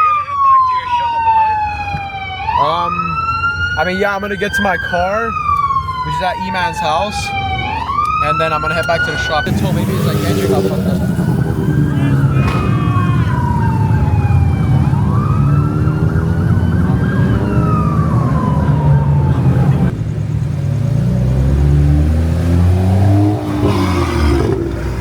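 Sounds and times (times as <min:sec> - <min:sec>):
siren wailing: 0:00.0 - 0:20.0, 0:22.4 - 0:25.0
car engine accelerating: 0:09.4 - 0:25.0
low engine rumble: 0:09.5 - 0:25.0.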